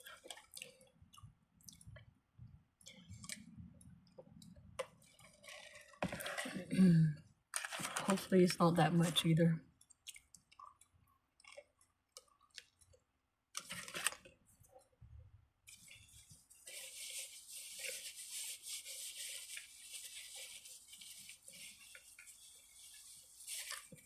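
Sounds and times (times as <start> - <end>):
person chewing crunchy food: 9.9 - 13.0.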